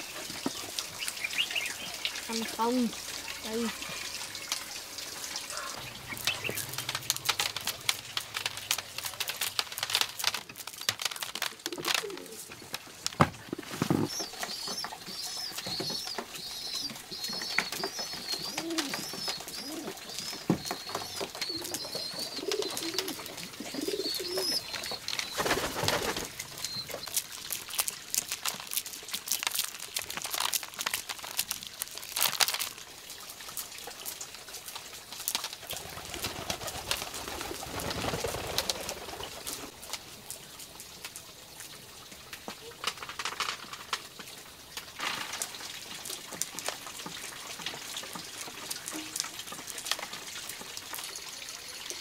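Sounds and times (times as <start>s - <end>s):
bird high warbling song: 0.5s - 4.5s, 5.5s - 6.8s, 14.0s - 25.6s.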